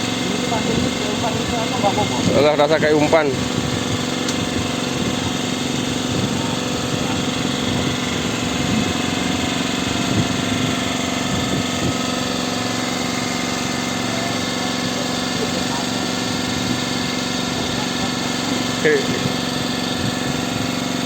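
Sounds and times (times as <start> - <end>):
boat engine running: 0.0 - 21.0
faint voices: 5.8 - 9.1.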